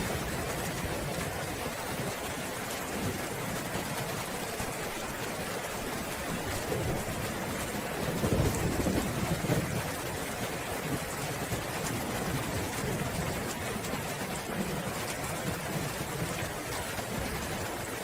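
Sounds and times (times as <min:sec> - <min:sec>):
steady rain: 0:00.0 - 0:18.0
thunder rumbling: 0:06.6 - 0:13.5.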